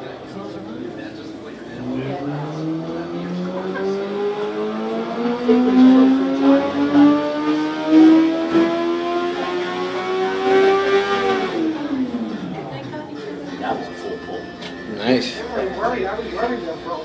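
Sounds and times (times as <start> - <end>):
sport bike engine at full throttle: 1.7 - 12.5.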